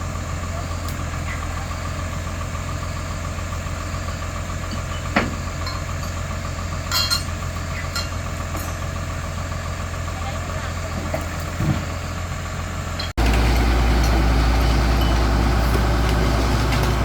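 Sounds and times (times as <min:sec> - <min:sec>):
excavator diesel engine idling: 0:00.0 - 0:17.0.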